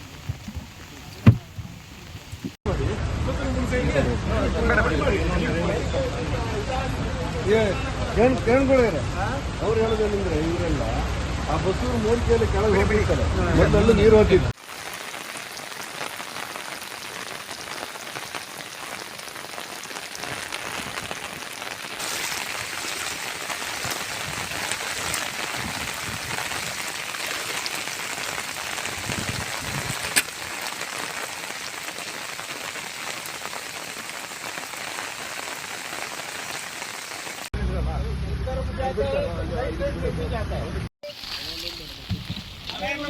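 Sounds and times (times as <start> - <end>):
heavy rain falling: 0.0 - 2.6, 14.6 - 37.5, 41.0 - 43.0.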